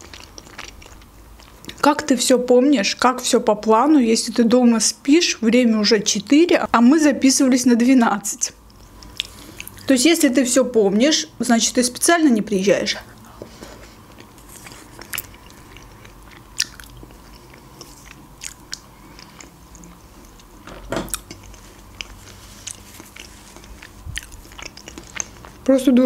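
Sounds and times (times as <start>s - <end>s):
person chewing wet mouth sounds: 0.0s - 1.8s, 8.6s - 9.9s, 13.1s - 25.7s.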